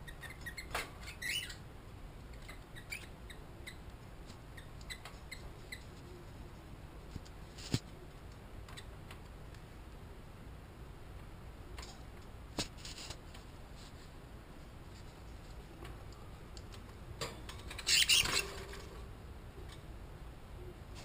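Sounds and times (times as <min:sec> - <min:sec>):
scratchy rustle: 0:12.6 - 0:15.7.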